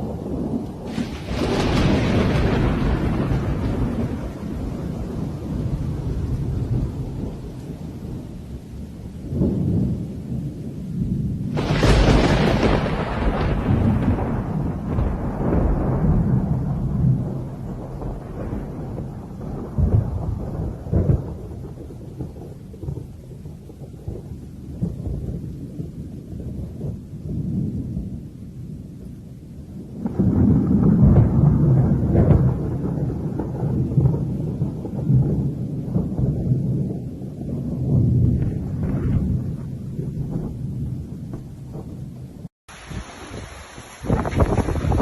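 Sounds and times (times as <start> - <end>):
loud thunder clap: 0.0 - 7.4, 11.4 - 23.1, 30.0 - 42.3, 44.0 - 45.0
rain: 0.0 - 45.0
thunder rumbling: 0.0 - 45.0.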